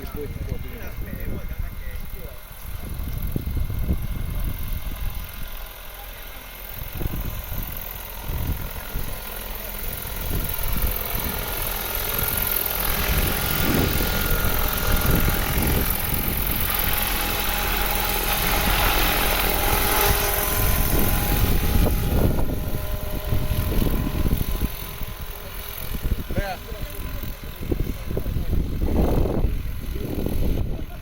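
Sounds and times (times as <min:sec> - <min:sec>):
helicopter rotor and engine: 0:00.0 - 0:31.0.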